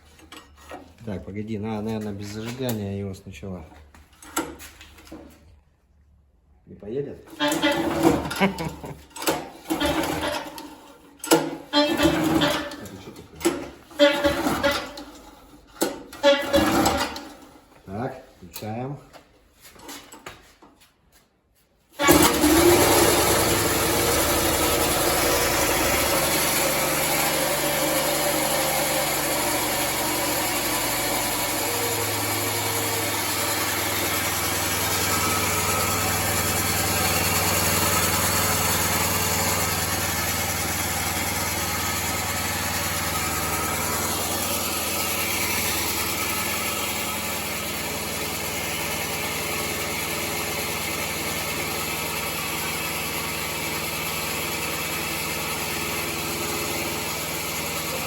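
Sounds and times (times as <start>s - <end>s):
petrol engine starting and running: 7.2s - 17.8s, 21.9s - 58.0s.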